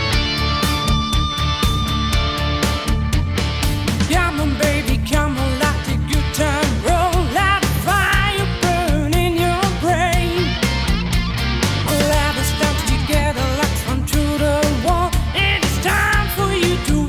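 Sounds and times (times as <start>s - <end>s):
drums: 0.0s - 17.0s
rock song: 0.0s - 17.0s
person singing: 4.0s - 10.6s, 11.9s - 17.0s.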